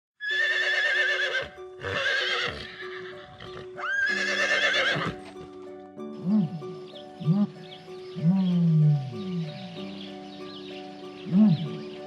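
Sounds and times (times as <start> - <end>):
horse whinnying: 0.2 - 5.3
background music: 0.2 - 12.0.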